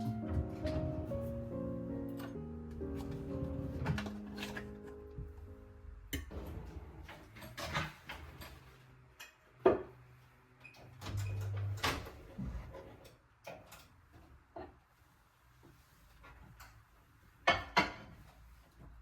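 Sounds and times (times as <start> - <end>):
dishes and utensils knocking: 17.4 - 18.2.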